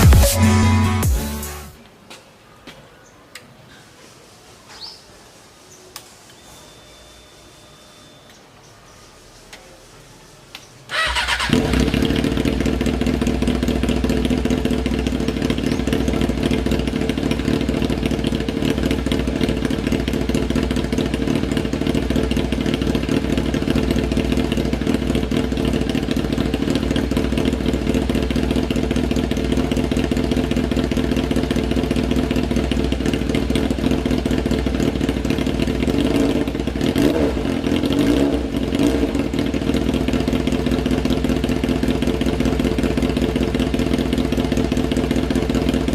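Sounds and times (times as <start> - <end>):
motorcycle throttle blips: 10.5 - 45.9
motorcycle engine idling: 10.9 - 45.9.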